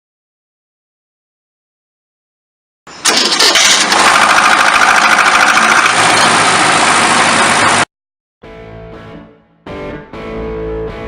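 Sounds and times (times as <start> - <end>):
car engine starting and running: 2.9 - 7.9.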